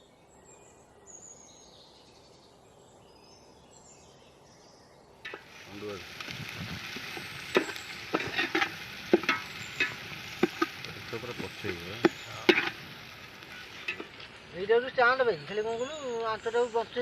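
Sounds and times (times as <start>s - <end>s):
food sizzling in hot oil: 5.2s - 17.0s
metal spatula scraping a pan: 7.0s - 10.8s, 11.5s - 14.2s.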